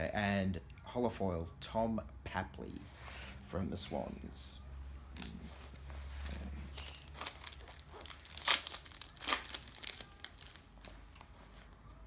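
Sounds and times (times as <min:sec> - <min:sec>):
plastic wrapper tearing and crinkling: 0:06.1 - 0:11.7.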